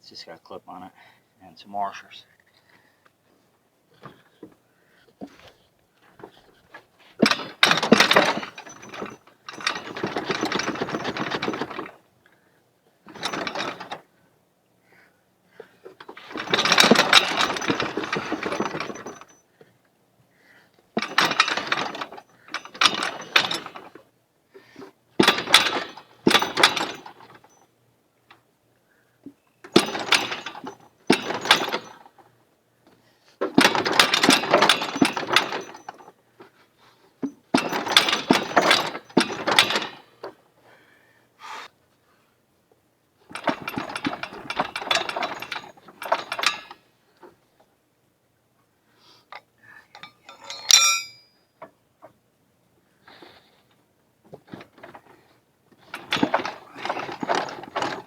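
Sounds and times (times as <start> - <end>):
rapid metallic clicking and rattling: 6.2 - 12.0, 13.1 - 14.0, 15.8 - 19.4, 21.0 - 24.0, 25.2 - 27.6, 29.7 - 32.3, 33.4 - 36.1, 37.3 - 40.3, 43.3 - 46.8, 54.4 - 58.0.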